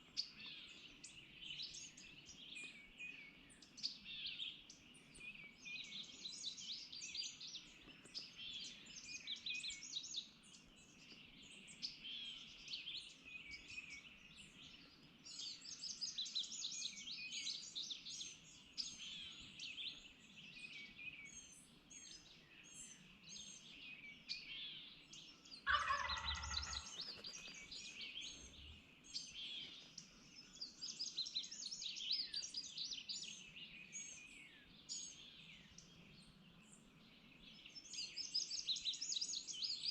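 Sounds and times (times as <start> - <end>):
songbirds singing: 0.0 - 39.9
turkey gobbling: 25.7 - 27.0.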